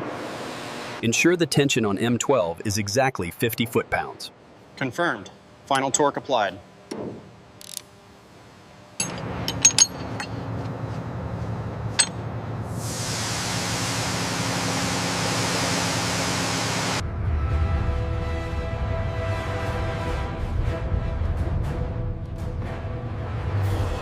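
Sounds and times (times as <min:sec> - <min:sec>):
loud steady hiss: 0:12.7 - 0:17.0
music: 0:17.0 - 0:24.0.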